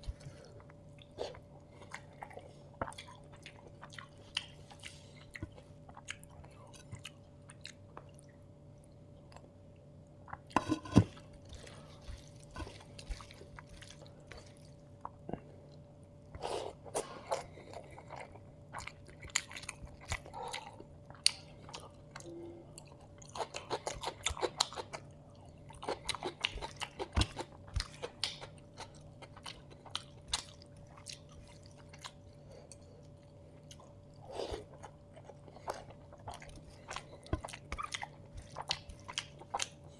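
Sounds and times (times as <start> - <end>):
close chewing and biting: 11.5 - 15.2, 16.8 - 39.9.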